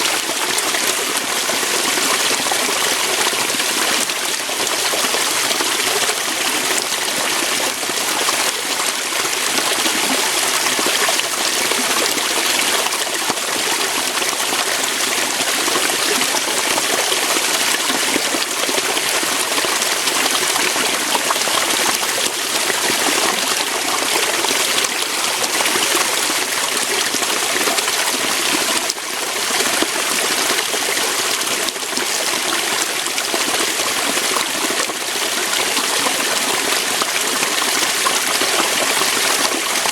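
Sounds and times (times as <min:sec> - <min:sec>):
water flowing over rocks: 0:00.0 - 0:39.9.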